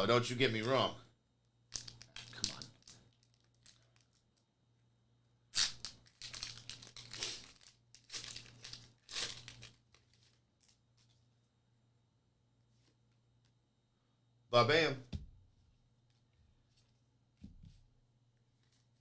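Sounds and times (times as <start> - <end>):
foil wrapper tearing and crinkling: 1.8 - 4.2, 5.6 - 10.8.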